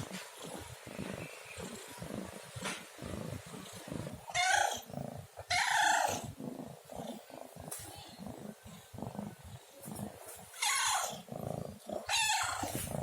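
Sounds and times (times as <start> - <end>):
cat meowing: 12.1 - 12.8.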